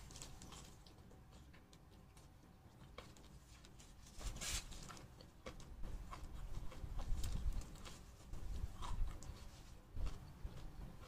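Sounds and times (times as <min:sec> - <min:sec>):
chewing and mouth sounds: 0:00.0 - 0:11.0
plastic gloves rustling: 0:03.4 - 0:05.0.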